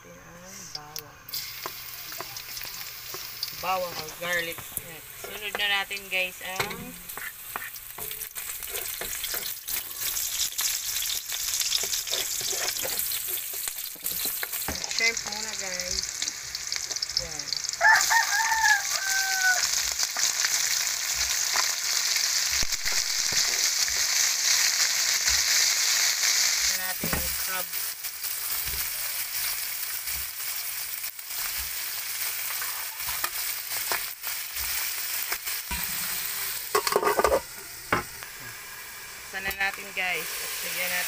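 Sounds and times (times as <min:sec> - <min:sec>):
shrimp sizzling in hot oil: 0:01.3 - 0:41.0
rooster crowing: 0:17.8 - 0:19.9.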